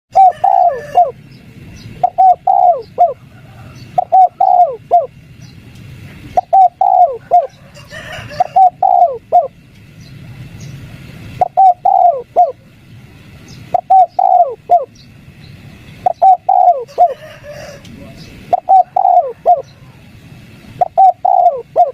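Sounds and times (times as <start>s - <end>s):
dove cooing: 0.1s - 1.2s, 2.0s - 5.2s, 6.2s - 9.6s, 11.4s - 12.6s, 13.7s - 14.9s, 16.0s - 20.1s, 20.7s - 21.9s.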